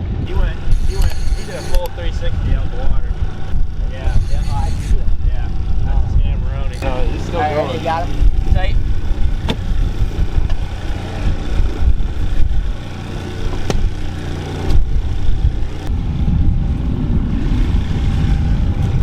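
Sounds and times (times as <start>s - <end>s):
boat engine humming: 0.0s - 15.9s
sharp click: 0.7s - 2.0s
uneven low rumble: 14.6s - 19.0s.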